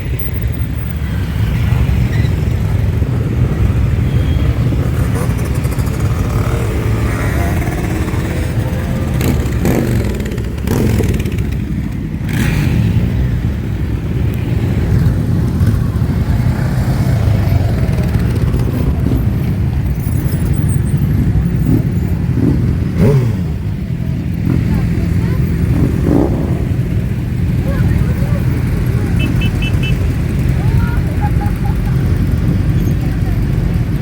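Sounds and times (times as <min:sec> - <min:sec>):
motorcycle engines rumbling: 0:00.0 - 0:34.0
motorcycle engine revs: 0:03.7 - 0:13.5, 0:21.1 - 0:30.9.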